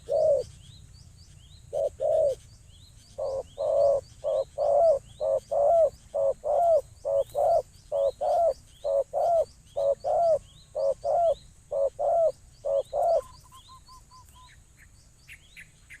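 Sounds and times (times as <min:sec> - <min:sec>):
dove cooing: 0:00.0 - 0:00.6, 0:01.7 - 0:02.4, 0:03.2 - 0:13.6
small birds chirping: 0:00.0 - 0:16.0.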